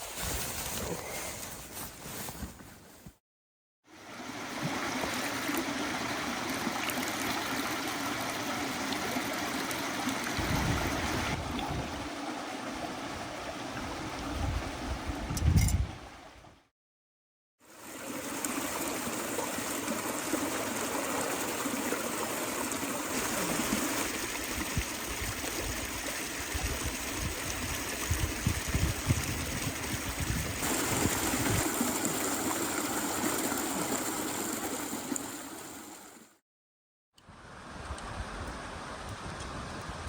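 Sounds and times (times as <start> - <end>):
creek water trickling: 3.9 - 16.3, 17.6 - 36.3.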